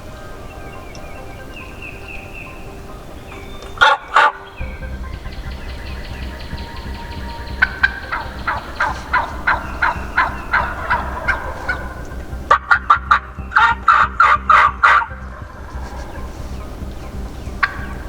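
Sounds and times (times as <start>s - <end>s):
turkey yelping: 3.7s - 18.0s.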